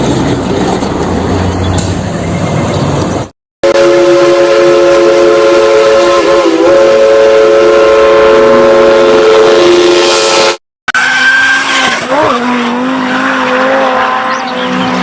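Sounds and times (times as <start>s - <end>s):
rumbling vehicle noise: 0.0s - 3.3s, 10.9s - 15.0s
train horn blast: 3.6s - 10.6s.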